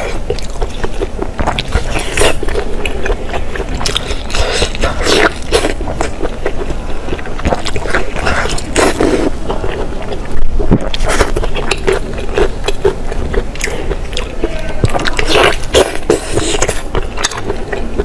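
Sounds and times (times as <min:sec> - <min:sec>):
wet chewing and mouth clicks: 0:00.0 - 0:18.0.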